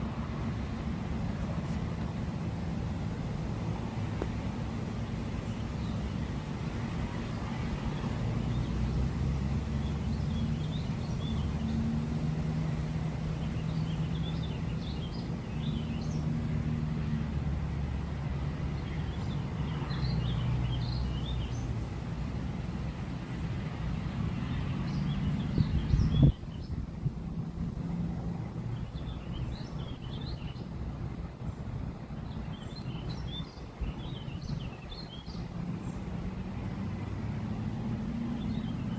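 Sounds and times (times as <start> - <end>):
small birds chirping: 4.2 - 6.5, 9.6 - 16.4, 18.7 - 21.8, 24.1 - 26.8, 28.7 - 30.8, 31.4 - 36.2.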